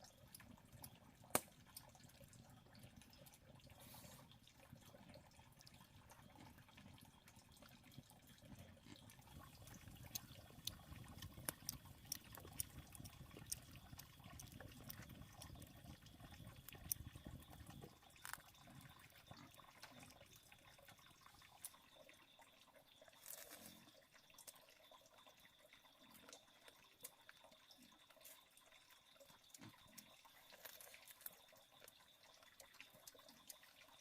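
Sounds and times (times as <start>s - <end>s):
water trickling and splashing: 0.0s - 34.0s.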